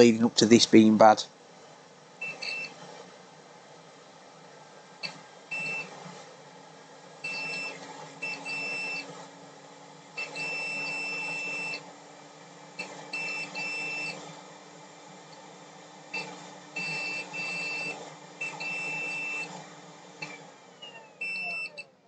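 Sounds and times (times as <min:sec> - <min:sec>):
multimeter continuity buzzer beeping: 0:02.2 - 0:02.7, 0:05.5 - 0:05.9, 0:07.2 - 0:09.0, 0:10.2 - 0:11.8, 0:13.2 - 0:14.2, 0:16.8 - 0:19.5, 0:21.2 - 0:21.9.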